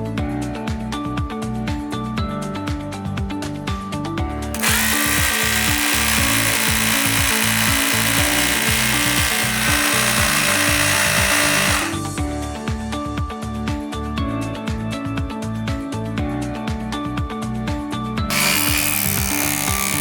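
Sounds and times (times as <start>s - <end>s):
rotary hammer drill running: 4.5s - 12.2s, 18.3s - 20.0s.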